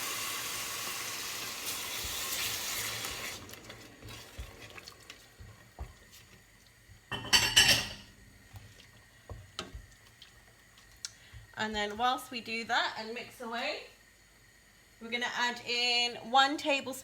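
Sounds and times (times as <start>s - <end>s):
curry base sizzling in hot pan: 0.0s - 12.1s.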